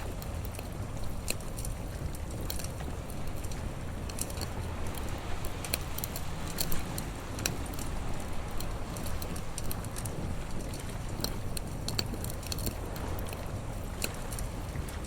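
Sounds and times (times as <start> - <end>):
low rush of noise: 0.0 - 15.0
wood fire crackling and popping: 0.0 - 15.0.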